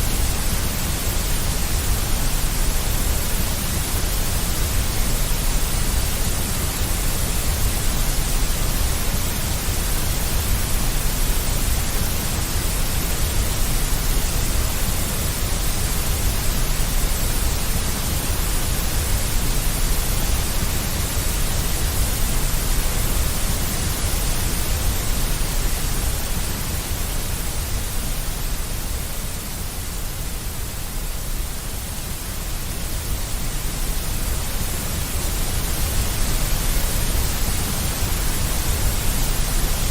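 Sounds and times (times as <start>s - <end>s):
deep white noise hiss: 0.0s - 39.9s.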